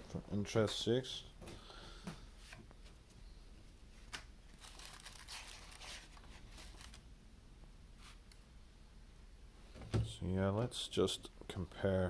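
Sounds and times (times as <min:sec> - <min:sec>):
pages rustling and turning: 0:04.0 - 0:07.0.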